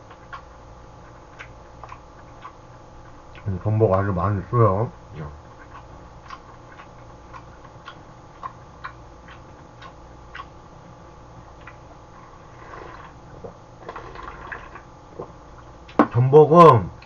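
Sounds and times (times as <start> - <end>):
person chewing: 0.0 - 4.5, 5.1 - 10.7, 11.4 - 16.2
faint low hum: 0.0 - 17.0
person sipping: 12.3 - 13.2, 13.8 - 14.8.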